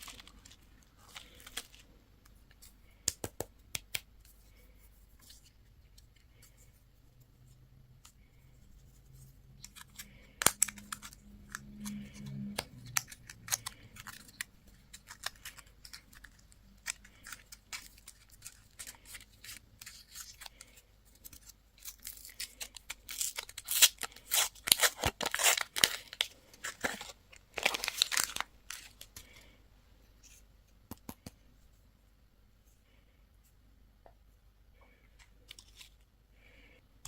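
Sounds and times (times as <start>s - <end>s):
packaging crinkling and tearing: 9.6s - 29.4s.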